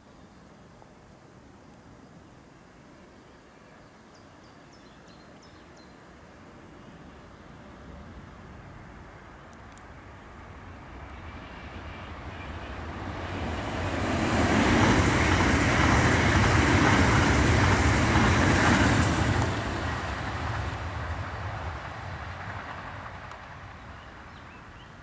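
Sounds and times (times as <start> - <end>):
train wheels rumbling on rails: 10.4 - 25.0.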